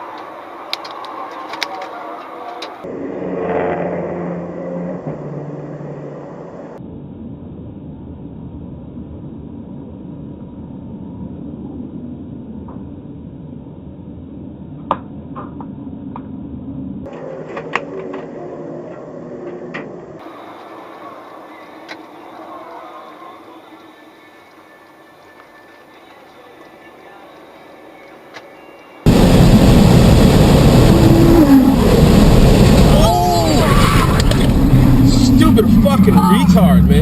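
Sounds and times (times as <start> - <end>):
road noise: 0.0 - 37.0
car engine: 1.9 - 10.6, 29.1 - 37.0.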